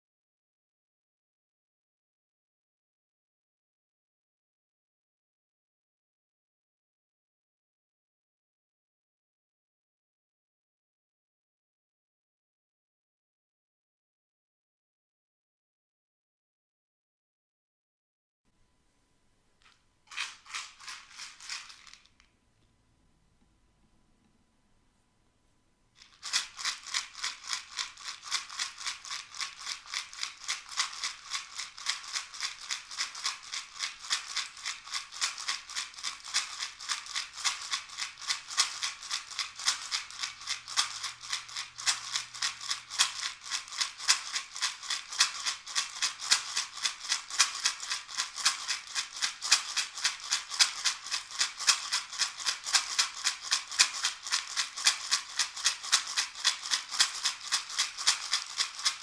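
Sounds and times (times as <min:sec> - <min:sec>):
hand shaker rattling: 0:19.6 - 0:22.4, 0:26.0 - 0:59.0.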